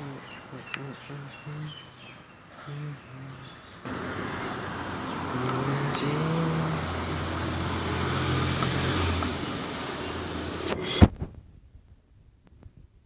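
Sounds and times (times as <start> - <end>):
road traffic noise: 2.6 - 11.1
vehicle engine running: 3.9 - 11.0.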